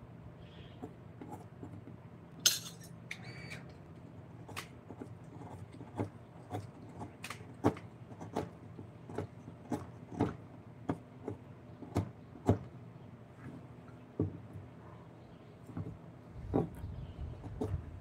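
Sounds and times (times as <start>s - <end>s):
carving tools knocking wood: 4.9s - 12.7s.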